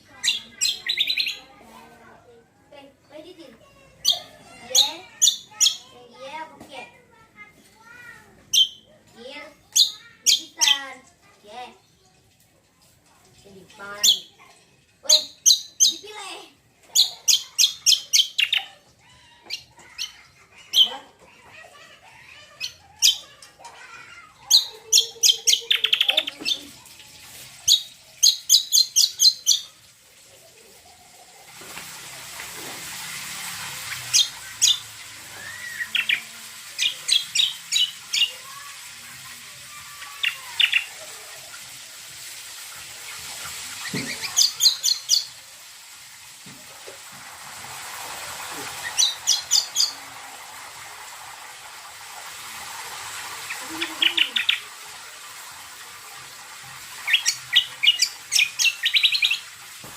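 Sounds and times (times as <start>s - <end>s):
bird chirping: 43.7s - 45.3s.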